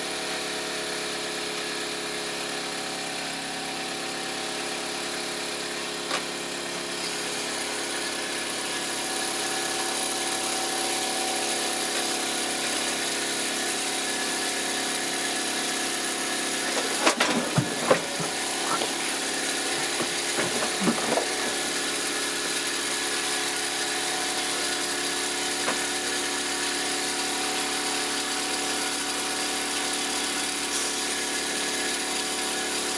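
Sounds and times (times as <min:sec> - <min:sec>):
toy steam engine running: 0:16.6 - 0:22.9
short knocks or clatters: 0:16.8 - 0:21.8.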